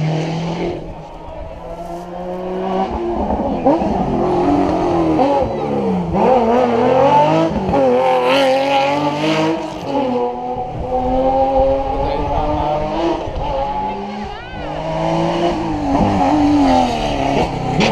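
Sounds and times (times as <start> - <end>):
rally car engine at full throttle: 0.0 - 17.9.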